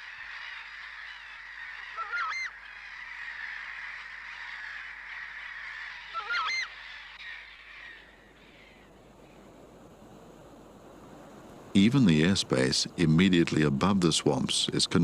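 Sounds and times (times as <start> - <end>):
bird giving loud calls: 0.0 - 8.9
high-pitched marsh chorus: 0.0 - 9.5.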